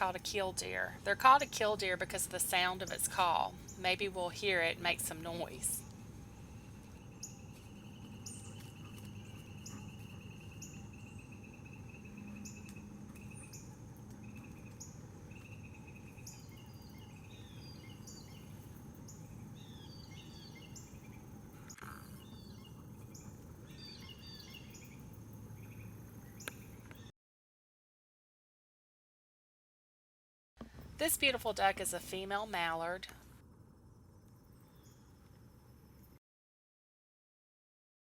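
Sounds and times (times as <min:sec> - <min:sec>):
birds chirping: 0:00.0 - 0:05.9, 0:06.7 - 0:27.1
pulsing insect trill: 0:06.4 - 0:26.5, 0:33.6 - 0:36.2.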